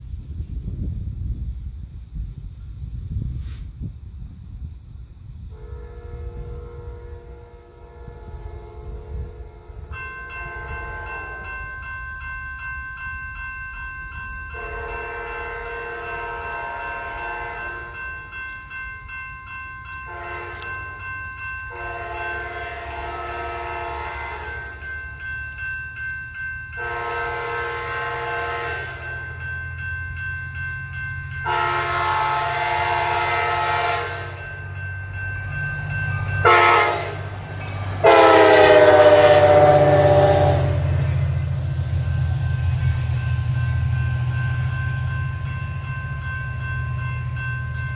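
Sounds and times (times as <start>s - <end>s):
train rumbling: 0.0s - 47.9s
locomotive horn blasts: 5.5s - 11.6s, 14.5s - 18.1s, 20.1s - 20.8s, 21.7s - 24.9s, 26.8s - 29.2s, 31.4s - 34.5s, 36.2s - 37.3s, 38.0s - 41.4s.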